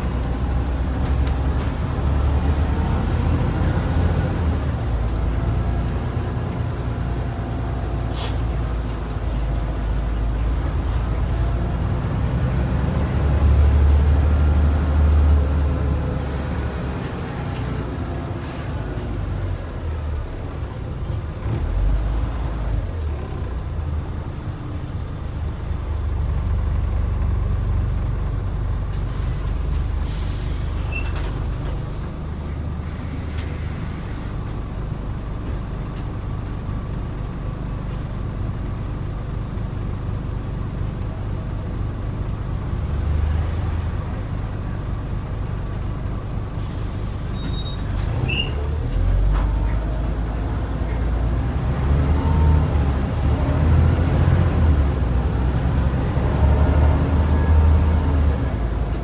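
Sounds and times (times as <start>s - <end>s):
bus diesel engine running: 0.0s - 59.0s
air brakes hissing: 16.2s - 17.8s, 18.4s - 18.7s, 29.0s - 34.4s, 46.6s - 49.5s.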